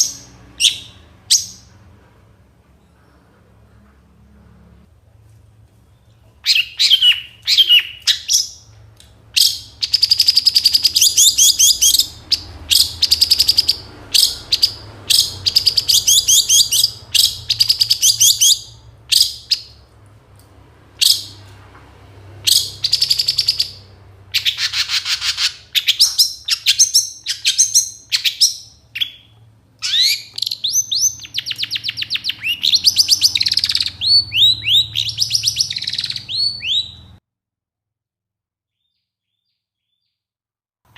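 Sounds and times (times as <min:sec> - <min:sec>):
bird chattering song: 0:00.0 - 0:01.8, 0:05.9 - 0:19.8, 0:22.4 - 0:37.2.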